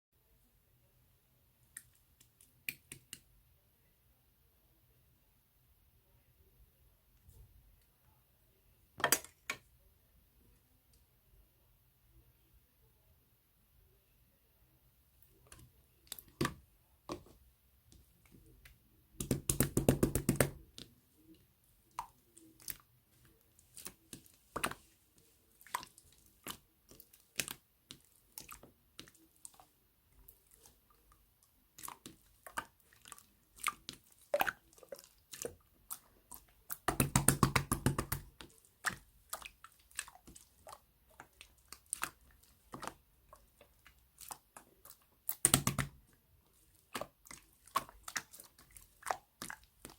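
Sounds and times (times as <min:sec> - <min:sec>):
slime squelching and popping: 0:18.3 - 0:20.9, 0:25.5 - 0:49.9.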